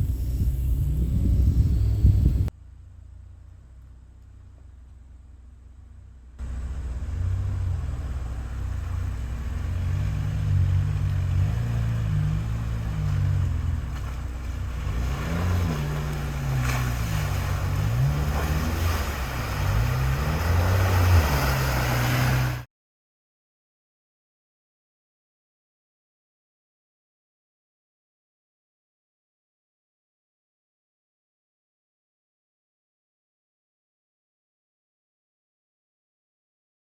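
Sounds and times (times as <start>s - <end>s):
off-road vehicle engine revving: 0.0s - 22.7s
tyre and terrain noise: 6.4s - 22.6s.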